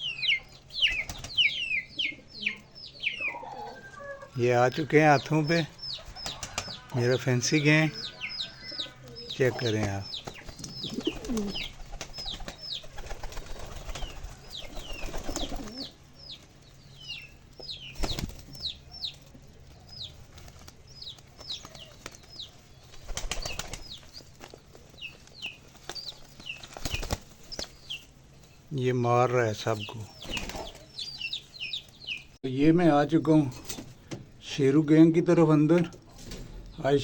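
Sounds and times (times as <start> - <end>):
small birds chirping: 0.0 - 37.0
pigeons flapping wings: 0.9 - 1.4, 6.0 - 6.9, 9.6 - 16.0, 17.8 - 18.7, 19.9 - 27.9, 30.2 - 30.8.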